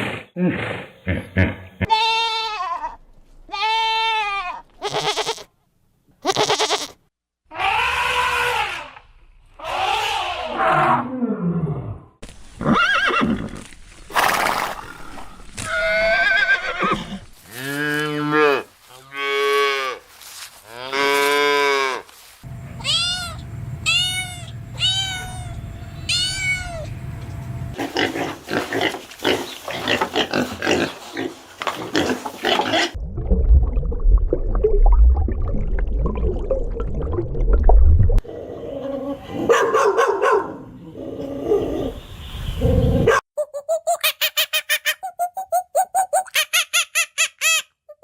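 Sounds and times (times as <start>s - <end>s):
animal sounds: 7.5s - 9.0s, 9.6s - 12.0s, 22.5s - 33.0s
cat meowing: 22.8s - 26.9s.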